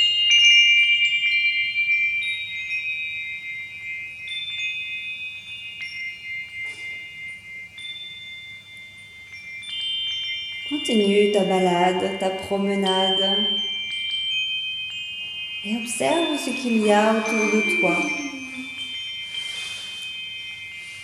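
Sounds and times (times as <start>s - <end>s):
wind chimes ringing: 0.0s - 21.0s.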